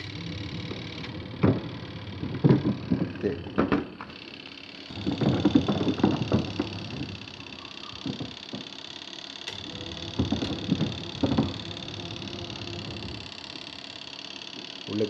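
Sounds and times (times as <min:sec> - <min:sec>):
motor hum: 0:00.0 - 0:15.0.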